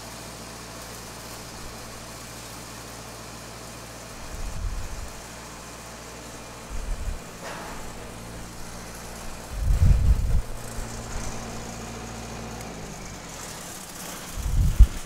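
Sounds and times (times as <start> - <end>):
engine idling: 0.0 - 15.0
heavy low rumbles: 4.4 - 5.2, 6.6 - 11.8, 14.3 - 15.0.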